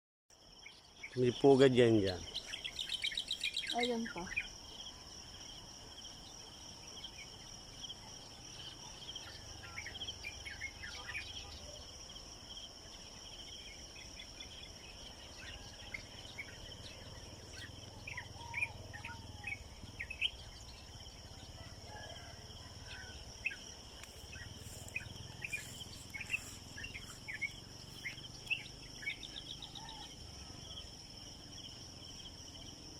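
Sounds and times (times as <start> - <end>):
small birds chirping: 0.4 - 30.8
insects shrilling: 21.5 - 30.0.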